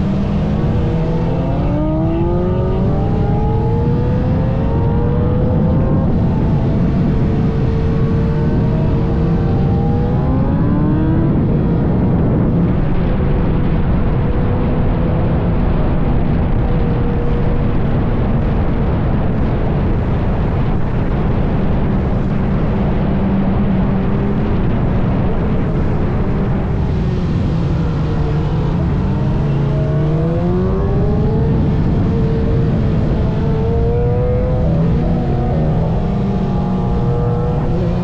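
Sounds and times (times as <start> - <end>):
engine revving: 0.0 - 13.1, 22.2 - 38.0
vehicle engines rumbling: 0.0 - 38.0.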